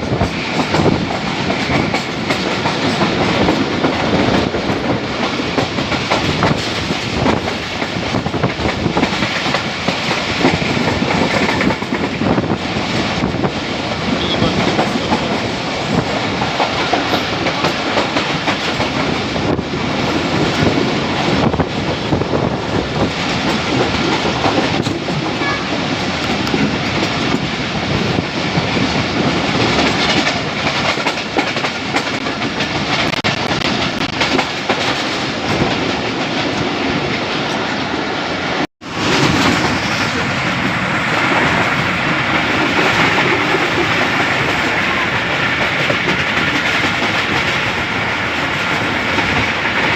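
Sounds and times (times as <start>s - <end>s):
wheels clacking over rail joints: 0.0s - 37.6s, 38.9s - 49.9s
train rumble: 0.0s - 49.9s.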